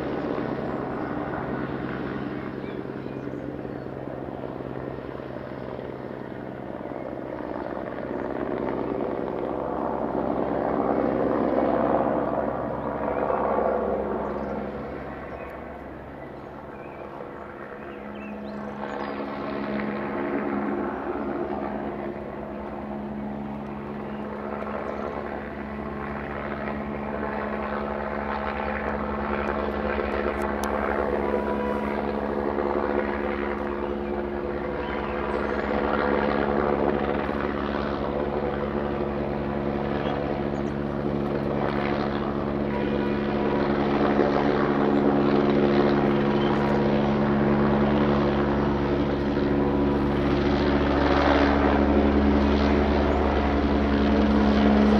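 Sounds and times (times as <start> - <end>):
helicopter rotor and engine drone: 0.0 - 54.9.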